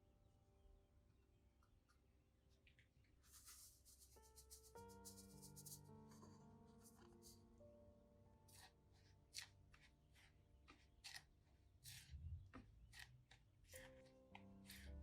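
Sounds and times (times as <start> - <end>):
quiet background music: 3.1 - 15.0
faint scraping strokes: 3.2 - 7.5.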